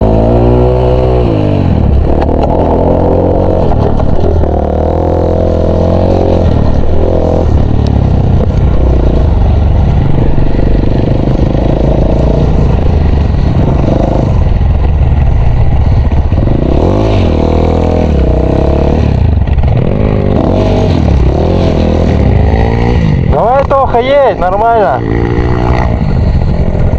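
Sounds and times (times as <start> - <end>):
dirt bike engine revving: 0.0 - 26.9.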